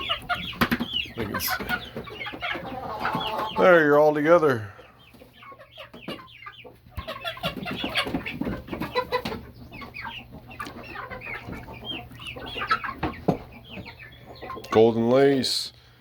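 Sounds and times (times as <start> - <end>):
young chickens clucking and peeping: 0.0 - 16.0.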